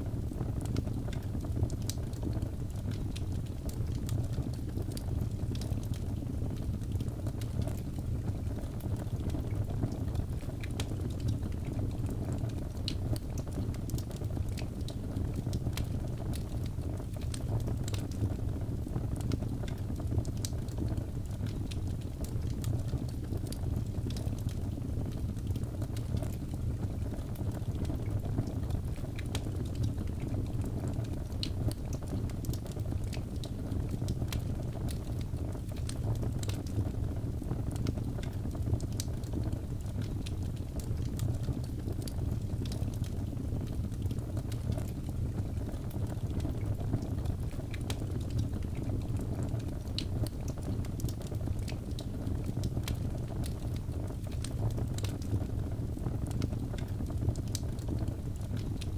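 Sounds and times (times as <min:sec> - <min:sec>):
fire crackles and pops: 0:00.0 - 0:58.9
low rumble of flames: 0:00.0 - 0:58.9.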